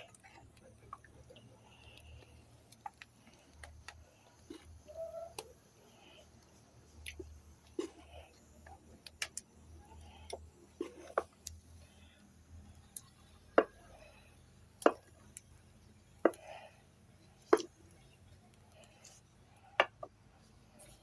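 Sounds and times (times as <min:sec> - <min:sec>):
firewood popping and clicking: 0:00.0 - 0:05.6, 0:06.4 - 0:11.9, 0:12.8 - 0:16.7, 0:17.3 - 0:19.0.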